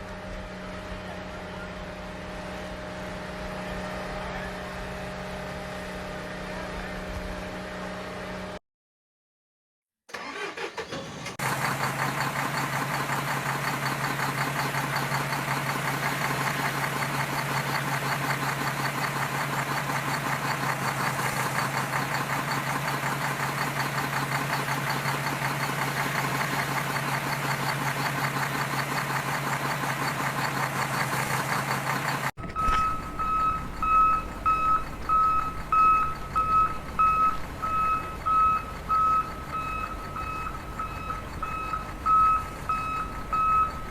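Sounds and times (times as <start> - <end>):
buzzing engine drone: 0.0 - 8.6, 30.4 - 43.9
reversing beeper: 32.4 - 43.9.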